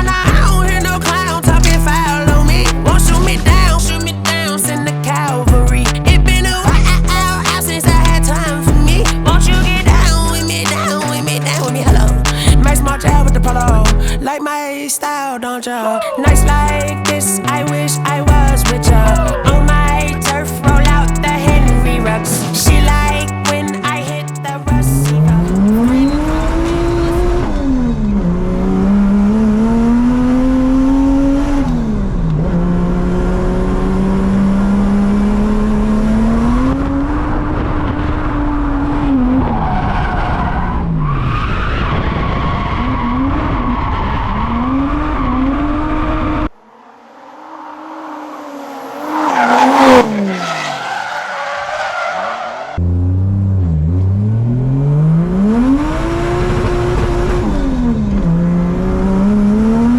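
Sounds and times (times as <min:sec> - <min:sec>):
car engine revving: 0:00.0 - 0:14.3, 0:16.3 - 0:59.9
tyres squealing: 0:46.7 - 0:52.8.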